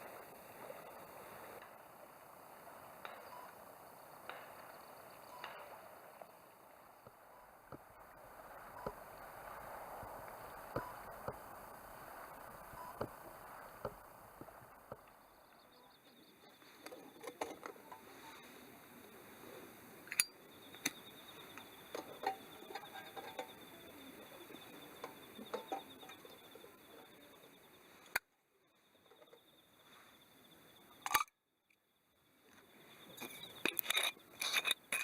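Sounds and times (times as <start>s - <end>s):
campfire crackling and popping: 0.0s - 15.6s
insects trilling: 0.0s - 35.0s.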